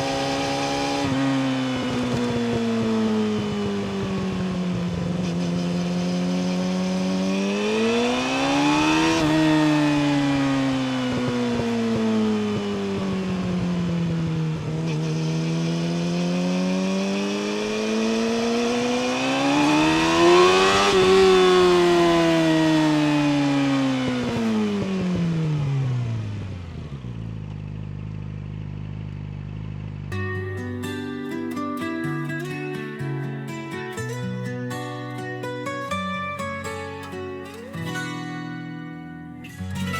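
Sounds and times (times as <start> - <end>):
motorcycle engine revving: 0.0 - 31.2.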